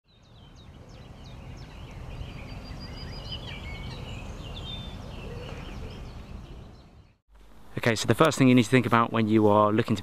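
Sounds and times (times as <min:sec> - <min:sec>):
birds chirping and warbling: 0:00.1 - 0:07.2.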